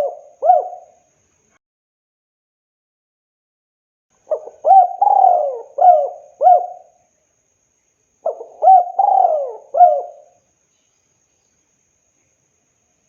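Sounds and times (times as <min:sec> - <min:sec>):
dove cooing: 0:00.0 - 0:01.0, 0:04.3 - 0:06.9, 0:08.2 - 0:10.4.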